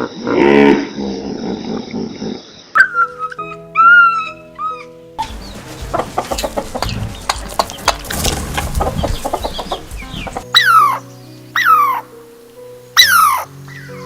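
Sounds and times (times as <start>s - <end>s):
chickens clucking: 2.8s - 11.0s
background music: 2.8s - 14.0s
clicks and scratchy sounds: 5.8s - 10.4s.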